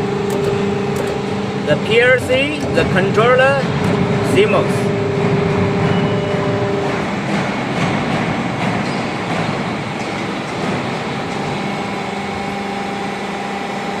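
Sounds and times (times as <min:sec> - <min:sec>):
lower hum tone: 0:00.0 - 0:07.0
thin steady whine: 0:00.0 - 0:07.4
workshop machinery humming: 0:00.0 - 0:14.0.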